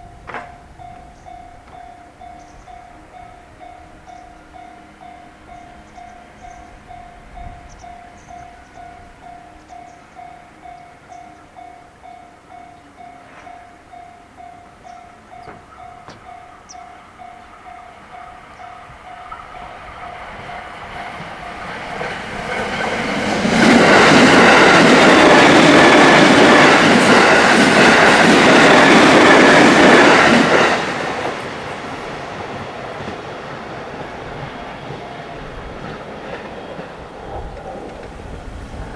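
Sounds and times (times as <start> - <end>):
crossing warning bell ringing: 0.0 - 33.1, 34.0 - 37.1
train wheels clattering on rails: 0.2 - 2.7, 18.5 - 38.9.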